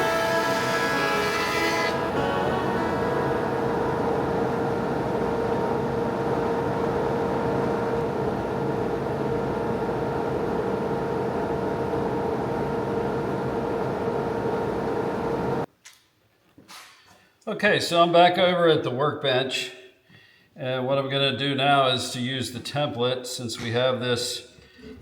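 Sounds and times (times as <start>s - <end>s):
thickness planer cutting wood: 0.0s - 4.6s.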